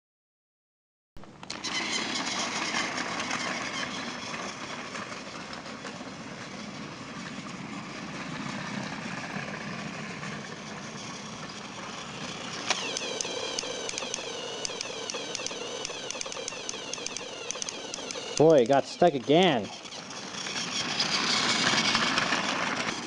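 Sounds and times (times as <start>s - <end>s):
toy train motor whirring: 1.5s - 7.2s, 9.1s - 23.0s
rattling clicks on plastic track: 12.6s - 23.0s.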